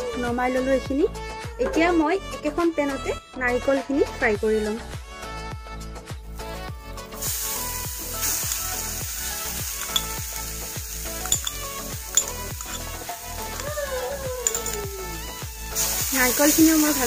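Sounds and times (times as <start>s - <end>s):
background music with beat: 4.7s - 17.0s
coconut sizzling in pan: 6.4s - 17.0s
spoon knocking against bowl: 9.8s - 10.2s, 11.1s - 13.7s, 14.4s - 14.9s.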